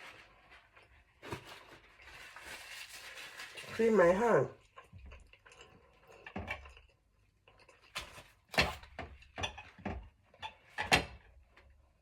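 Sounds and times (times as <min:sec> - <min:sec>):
knocks and rustles at a table: 0:08.0 - 0:10.2.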